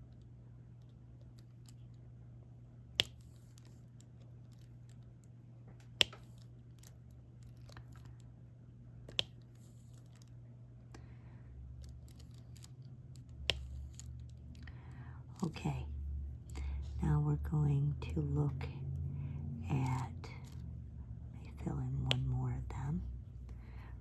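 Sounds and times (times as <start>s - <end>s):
low steady hum: 0.0s - 24.0s
sharp plastic clicks: 3.0s - 8.3s, 9.0s - 10.3s.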